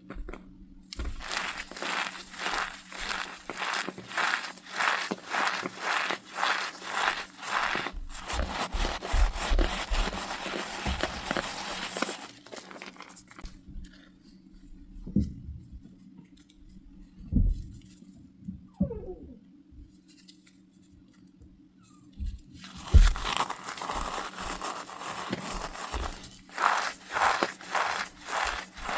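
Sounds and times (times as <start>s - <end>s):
cornstarch crunching squeaky: 1.0s - 13.4s, 22.6s - 28.9s.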